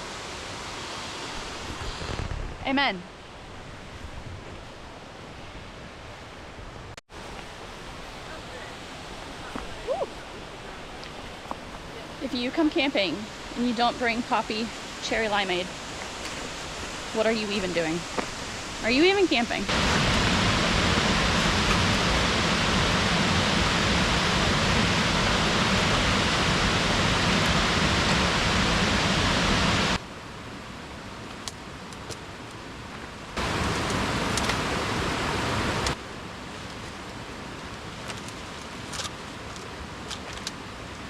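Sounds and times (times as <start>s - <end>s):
waterfall rushing: 7.2s - 30.0s, 33.4s - 36.0s.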